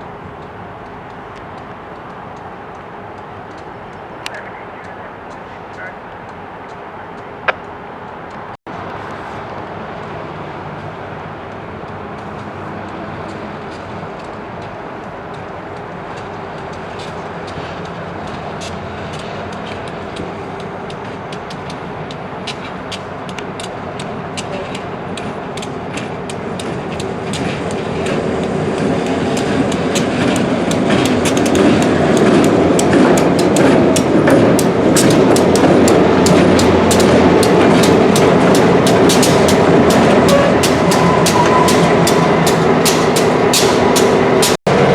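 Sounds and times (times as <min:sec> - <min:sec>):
wheels clicking over rail joints: 0:00.0 - 0:08.5, 0:10.8 - 0:44.6
freight train rumble: 0:00.0 - 0:44.9.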